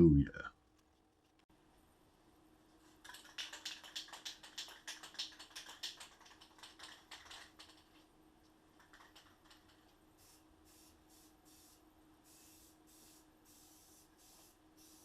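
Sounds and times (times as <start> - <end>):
faint steady hum: 0.0 - 15.0
rapid light clicks and taps: 3.0 - 10.0.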